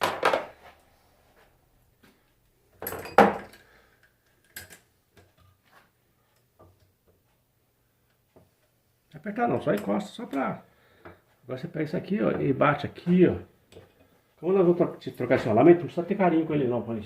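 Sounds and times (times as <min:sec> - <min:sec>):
metal parts clunking and clinking: 0:02.8 - 0:05.5.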